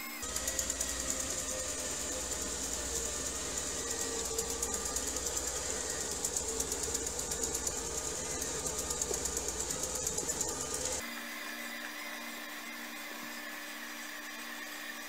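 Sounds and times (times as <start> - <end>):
floor vacuum motor whine: 0.0 - 15.0
rapid clicking rattle: 0.2 - 11.1.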